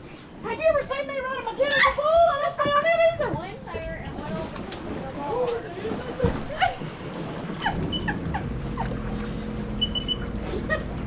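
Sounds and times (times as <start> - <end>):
jet ski engine idling: 5.1 - 11.0.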